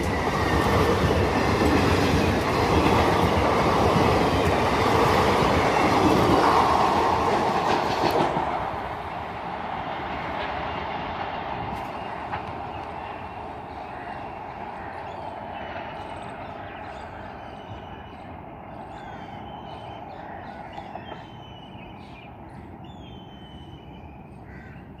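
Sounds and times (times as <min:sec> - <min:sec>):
passenger train rumble: 0:00.0 - 0:25.0
birds calling: 0:11.7 - 0:25.0.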